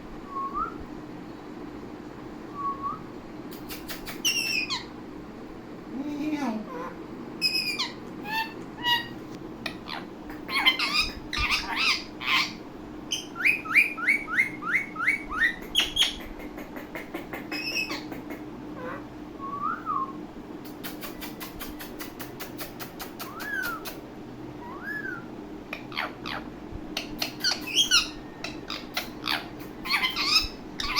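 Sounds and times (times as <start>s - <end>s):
steady low hum: 0.0s - 30.9s
parakeet squawks and whistles: 3.7s - 4.9s, 7.4s - 16.2s, 17.5s - 18.1s, 23.2s - 24.0s, 24.6s - 30.9s.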